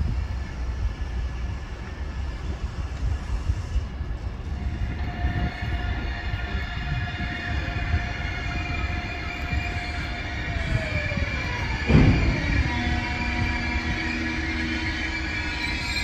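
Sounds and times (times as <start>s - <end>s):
train low rumble: 0.0s - 16.0s
high-pitched whine: 4.3s - 16.0s.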